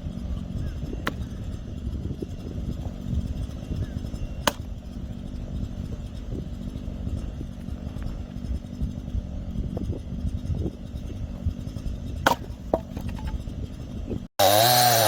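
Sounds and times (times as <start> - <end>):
small engine running: 0.0 - 15.0
axe splitting firewood: 1.0 - 1.3, 4.4 - 4.8, 12.2 - 13.4, 14.4 - 15.0.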